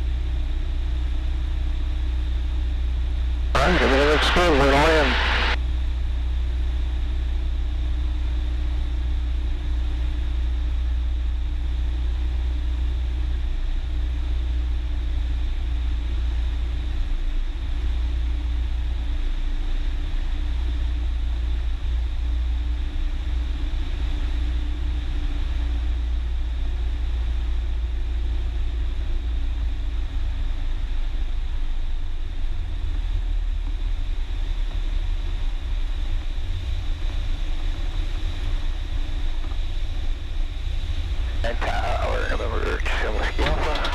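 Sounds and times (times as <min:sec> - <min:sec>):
small plane engine drone: 0:00.1 - 0:05.6.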